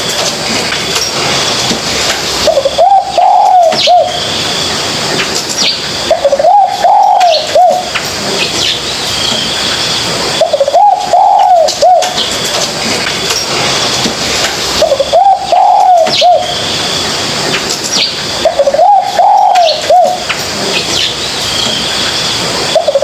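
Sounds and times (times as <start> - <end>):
dove cooing: 2.4 - 4.2, 6.1 - 8.0, 10.4 - 12.3, 14.8 - 16.6, 18.4 - 20.3, 22.7 - 23.0.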